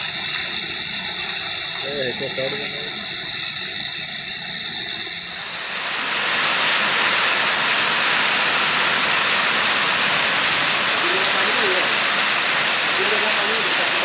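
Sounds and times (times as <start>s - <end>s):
torrential rain falling: 0.0s - 14.0s.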